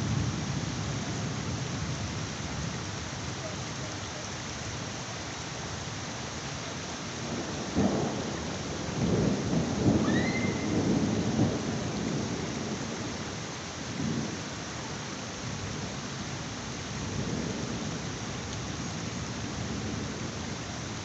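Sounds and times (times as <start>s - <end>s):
heavy rain: 0.0s - 21.0s
rolling thunder: 7.2s - 13.3s.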